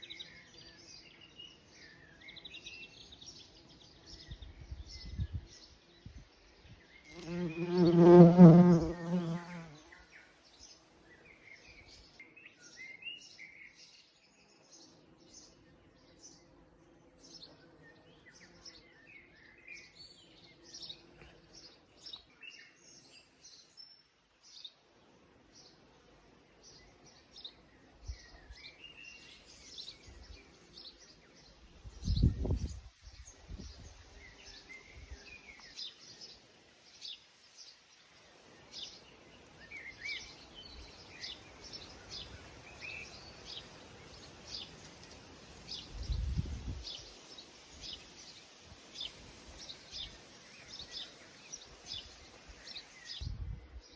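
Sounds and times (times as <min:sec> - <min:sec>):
small birds chirping: 0:00.0 - 0:24.7, 0:26.5 - 0:53.9
faint bee buzz: 0:00.0 - 0:37.1
bumblebee buzzing past: 0:07.1 - 0:09.8.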